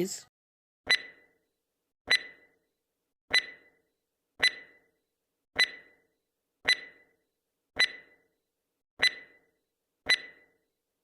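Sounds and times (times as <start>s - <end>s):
countdown timer ticking: 0.9s - 1.3s, 2.1s - 2.6s, 3.3s - 3.8s, 4.4s - 4.9s, 5.6s - 6.0s, 6.7s - 7.1s, 7.8s - 8.3s, 9.0s - 9.5s, 10.1s - 10.6s.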